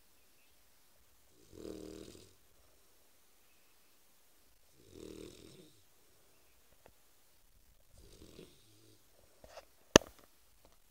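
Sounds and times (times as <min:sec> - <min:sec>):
puppy snoring: 0:01.3 - 0:02.4, 0:04.7 - 0:05.9, 0:07.9 - 0:09.1.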